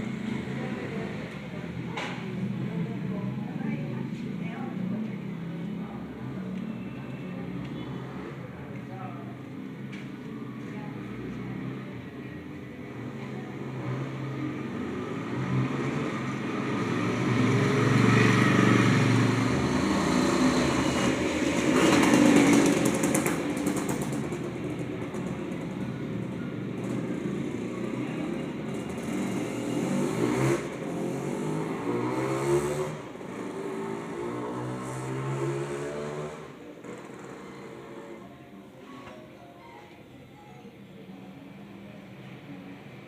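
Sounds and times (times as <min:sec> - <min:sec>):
motor vehicles passing: 0:00.0 - 0:38.6.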